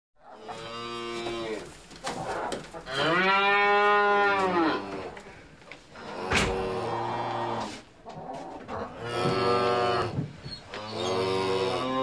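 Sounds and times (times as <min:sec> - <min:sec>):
cattle mooing: 0:02.9 - 0:05.1, 0:10.8 - 0:12.0.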